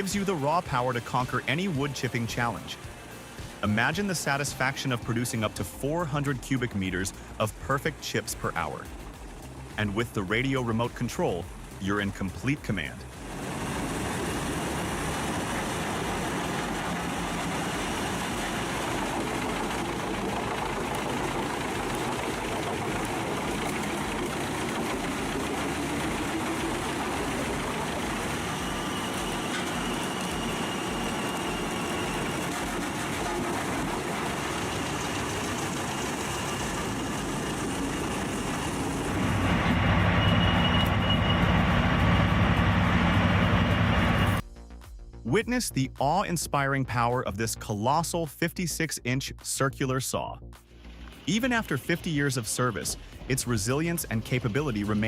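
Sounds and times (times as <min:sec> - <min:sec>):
wood chipper engine running: 0:13.1 - 0:44.4
faint high whine: 0:24.7 - 0:44.4.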